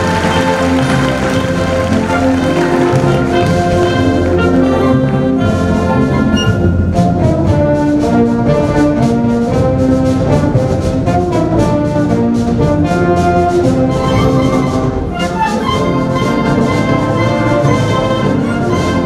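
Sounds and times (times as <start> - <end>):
percussive beat: 0.0 - 5.9
brass band music: 0.0 - 19.0.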